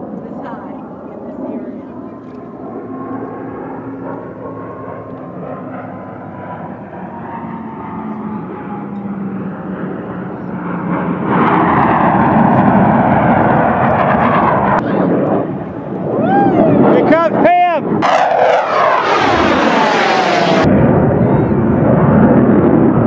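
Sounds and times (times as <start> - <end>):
aircraft flying by: 0.0 - 23.0.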